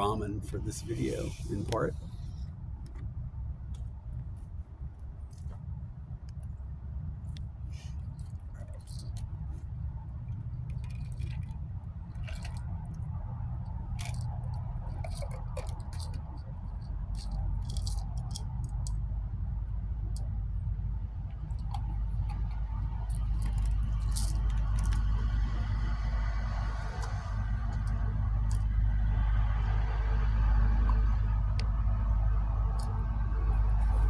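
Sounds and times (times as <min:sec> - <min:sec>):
steady low rumble: 0:00.0 - 0:34.0
handling crinkles clicks and scrapes: 0:07.3 - 0:19.0, 0:21.3 - 0:25.6.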